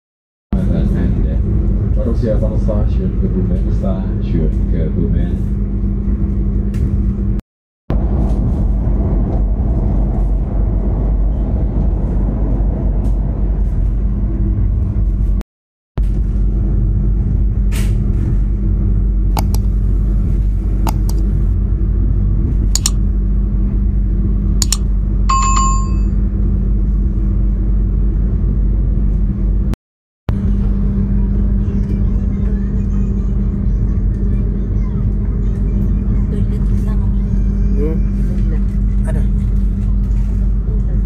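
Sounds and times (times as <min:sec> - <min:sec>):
train rumbling inside carriage: 0:00.6 - 0:15.4, 0:16.0 - 0:41.0
sharp clicks: 0:19.4 - 0:19.7, 0:20.9 - 0:21.2, 0:22.8 - 0:23.0, 0:24.6 - 0:24.8
short bell-like ring: 0:25.3 - 0:26.1.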